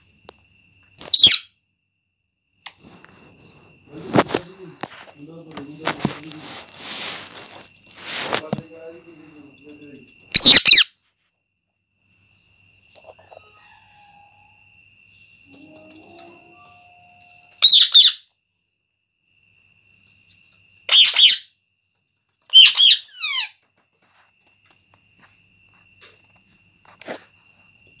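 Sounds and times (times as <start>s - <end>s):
parrot harsh calls: 1.0s - 1.5s, 10.3s - 10.9s, 17.6s - 18.3s, 20.9s - 21.5s, 22.5s - 23.6s.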